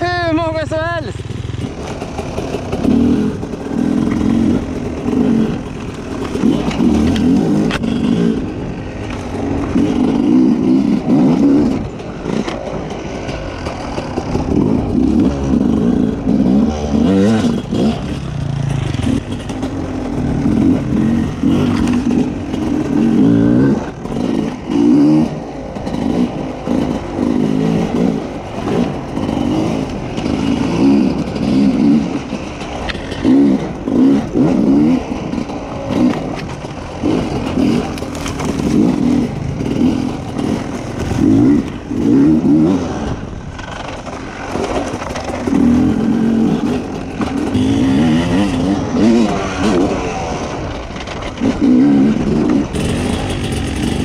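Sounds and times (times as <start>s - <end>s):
motorcycle engine revving: 0.0s - 54.0s
bike clattering over rough ground: 1.2s - 10.3s, 10.9s - 54.0s.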